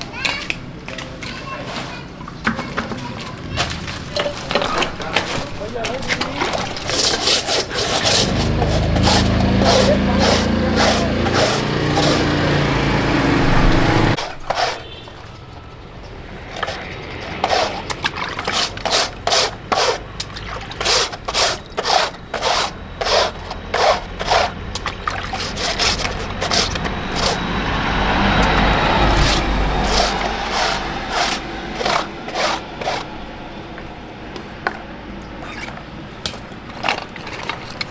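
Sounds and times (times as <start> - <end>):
short scraping strokes: 4.8 - 15.4, 16.3 - 33.9
machine hum: 8.2 - 14.2.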